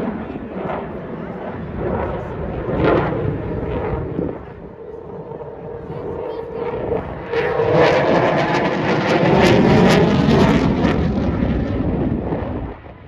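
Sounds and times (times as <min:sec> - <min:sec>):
jet passing overhead: 0:00.0 - 0:13.0.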